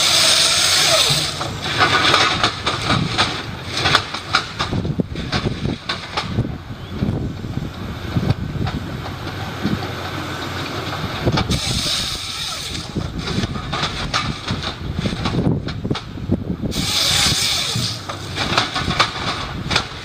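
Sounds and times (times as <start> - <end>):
knocks and clatter: 0.0 - 6.5, 8.1 - 20.0
heavy machinery running: 0.0 - 20.0
hissing rush: 16.7 - 18.5.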